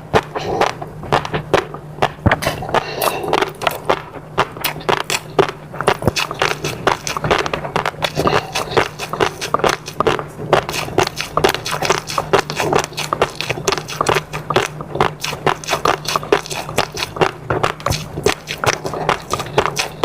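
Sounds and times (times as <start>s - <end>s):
faint low hum: 0.0s - 20.0s
wet chewing and smacking: 0.0s - 20.0s.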